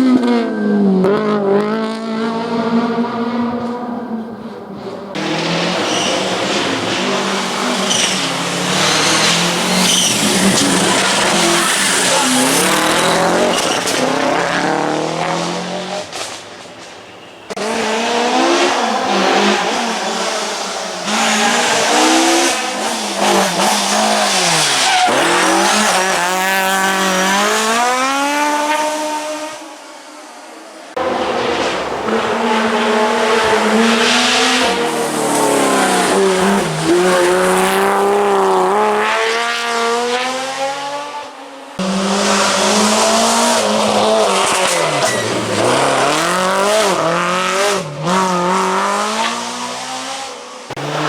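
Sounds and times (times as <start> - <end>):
rally car engines revving: 0.0 - 51.0
tyres squealing: 5.2 - 14.1, 17.0 - 26.2.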